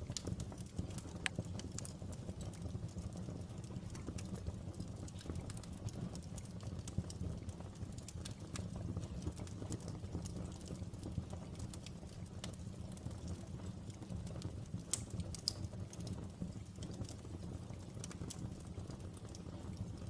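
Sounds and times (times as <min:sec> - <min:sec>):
burning wood crackling and popping: 0:00.0 - 0:20.0
fire rumbling: 0:00.0 - 0:20.0.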